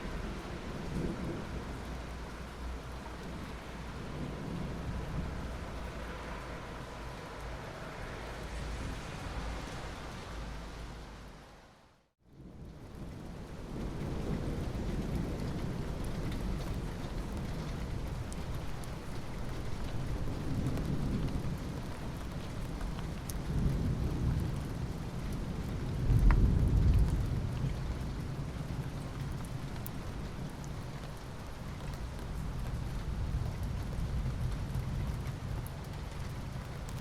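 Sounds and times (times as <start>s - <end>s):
thunder rumbling: 0.0s - 7.2s, 19.5s - 30.8s
steady rain hissing: 0.0s - 37.0s.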